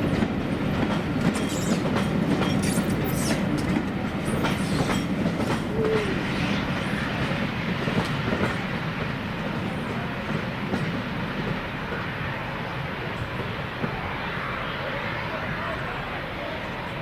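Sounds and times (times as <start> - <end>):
train wheels clicking over rails: 0.0 - 12.1.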